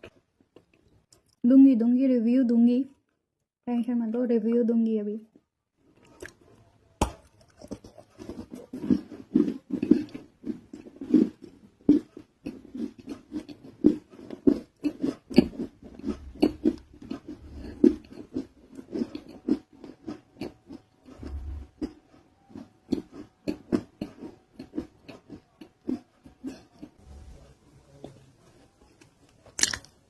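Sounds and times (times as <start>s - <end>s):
chewing and crunching: 5.9s - 27.0s, 28.0s - 30.0s.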